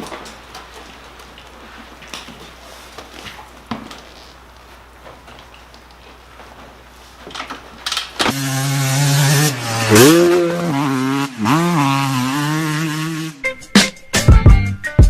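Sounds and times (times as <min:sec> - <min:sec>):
dirt bike engine running: 0:07.8 - 0:13.4.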